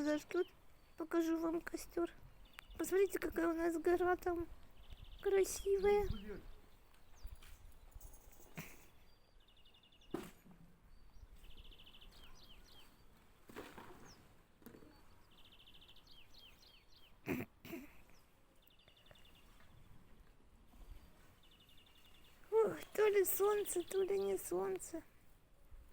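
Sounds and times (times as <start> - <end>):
small songbird trilling song: 0.0 - 8.0, 10.9 - 13.2, 15.0 - 17.2.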